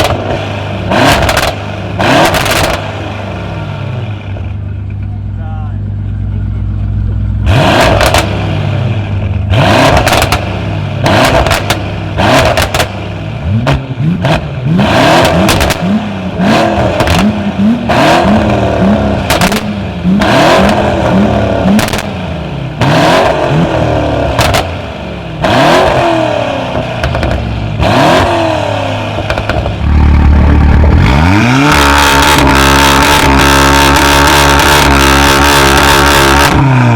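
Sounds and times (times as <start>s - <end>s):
exhaust pops and crackles: 0.0s - 0.4s, 1.0s - 3.0s, 7.8s - 8.3s, 9.9s - 13.0s, 15.2s - 15.9s, 16.9s - 17.4s, 19.2s - 20.8s, 21.7s - 22.2s, 24.3s - 24.8s, 26.7s - 27.5s, 29.1s - 36.7s
car engine revving: 0.0s - 36.9s.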